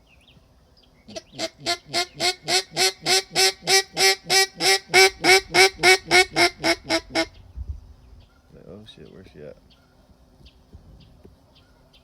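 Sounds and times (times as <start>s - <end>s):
duck call quacking: 1.1s - 7.3s.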